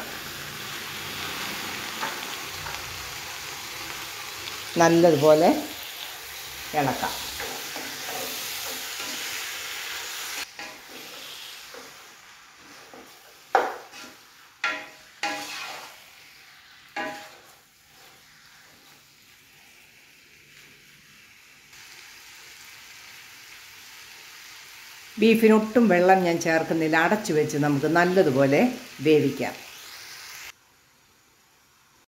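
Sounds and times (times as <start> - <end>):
meat sizzling in oil: 0.0 - 32.0.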